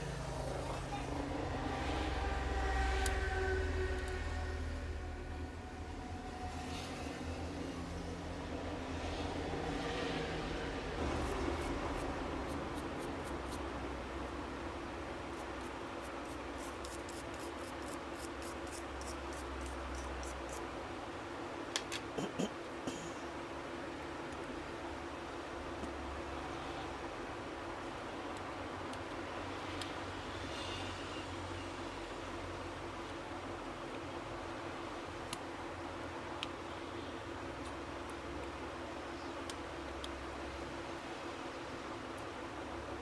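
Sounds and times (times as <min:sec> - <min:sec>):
steady low hum: 0:00.0 - 0:29.4.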